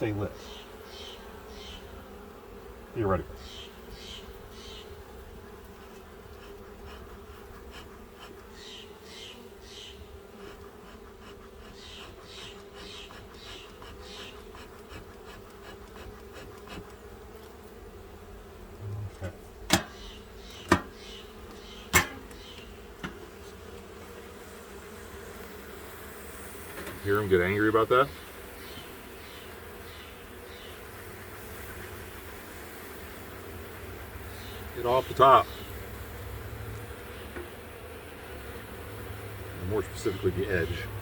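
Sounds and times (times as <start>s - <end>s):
honeybees buzzing: 0.0s - 41.0s
sharp knocks: 19.7s - 20.0s, 20.6s - 20.9s, 21.9s - 22.4s.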